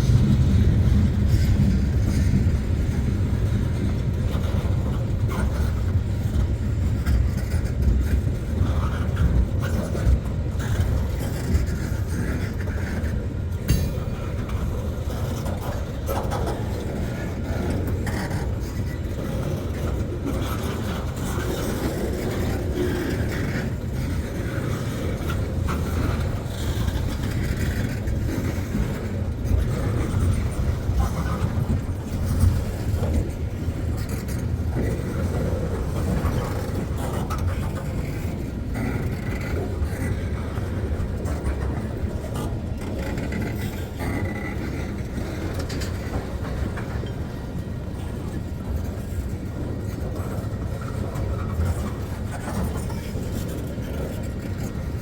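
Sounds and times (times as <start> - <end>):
train wheels rumbling on rails: 0.0 - 55.0
clicks and clanks: 13.6 - 14.7.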